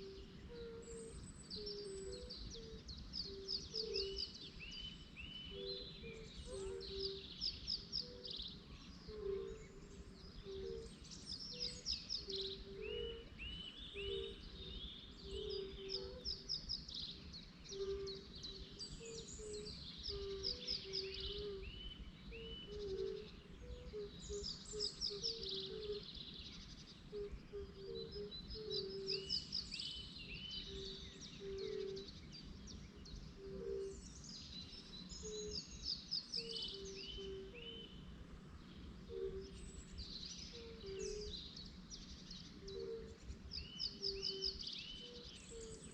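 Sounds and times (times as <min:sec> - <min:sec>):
birds singing trilled songs: 0:00.0 - 0:45.9.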